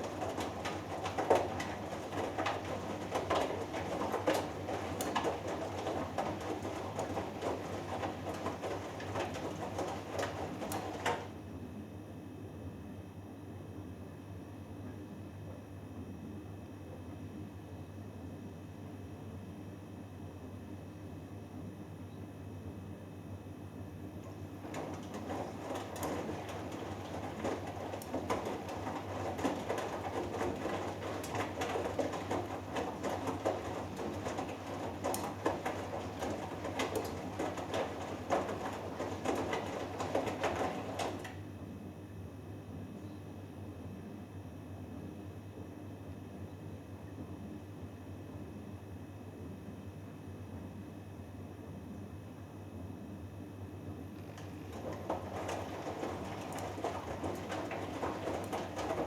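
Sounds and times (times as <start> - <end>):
laundry sloshing in drum: 0.0 - 11.4, 24.2 - 41.5, 54.2 - 59.0
washing machine motor hum: 0.0 - 11.7, 23.3 - 42.0, 53.7 - 59.0.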